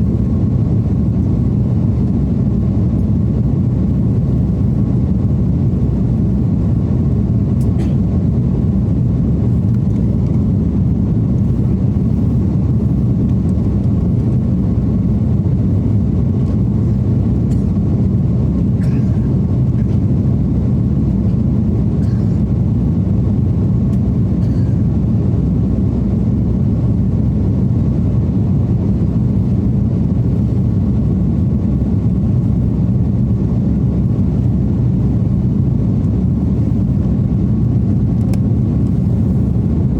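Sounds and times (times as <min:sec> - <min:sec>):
jet engine cabin roar: 0:00.0 - 0:39.9.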